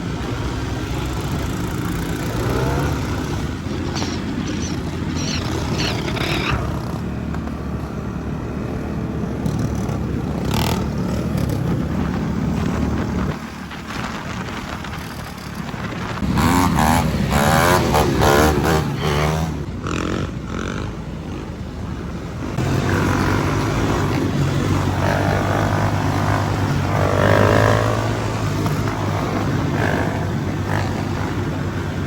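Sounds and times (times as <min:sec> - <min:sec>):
dirt bike engines revving: 0:00.0 - 0:32.0.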